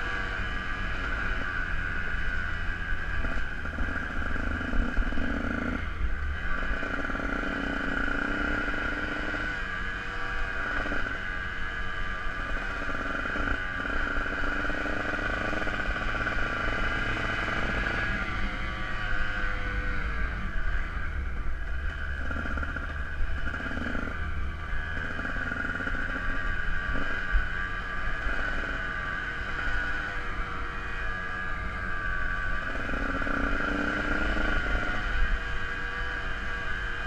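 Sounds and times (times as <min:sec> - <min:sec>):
dirt bike engine running: 0:00.0 - 0:37.0.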